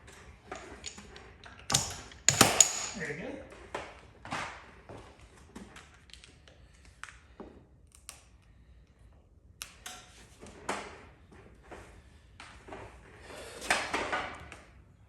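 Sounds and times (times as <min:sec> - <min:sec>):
tools clicking and tapping: 0:00.5 - 0:03.1.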